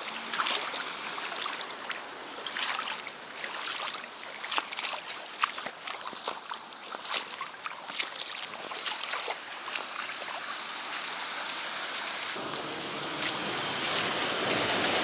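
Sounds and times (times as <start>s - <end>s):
footsteps splashing through puddle: 0.0s - 11.8s, 12.4s - 14.9s.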